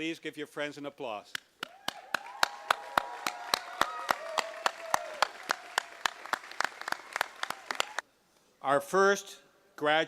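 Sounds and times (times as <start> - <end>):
crowd applauding: 1.6 - 8.0
people cheering: 1.6 - 8.0.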